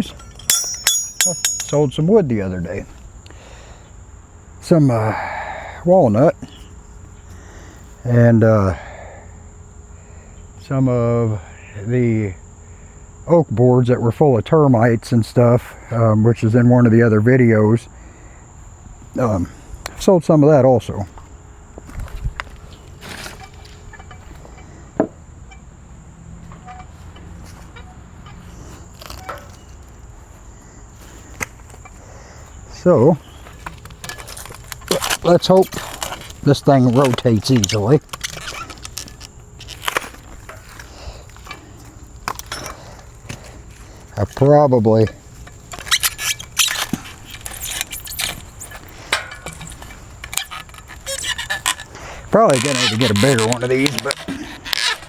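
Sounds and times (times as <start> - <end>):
metallic clinks and scrapes: 0.0 - 2.2, 26.5 - 30.1, 33.2 - 55.0.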